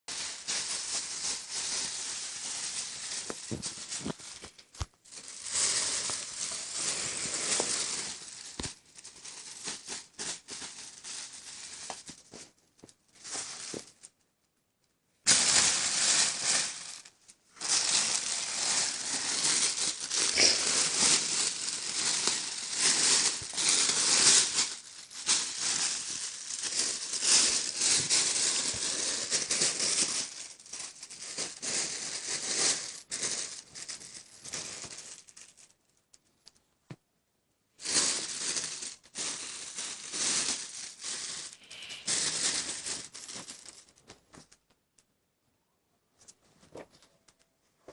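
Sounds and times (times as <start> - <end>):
plastic bag crinkling and rustling: 0.1 - 14.2, 15.3 - 36.6, 37.8 - 44.9.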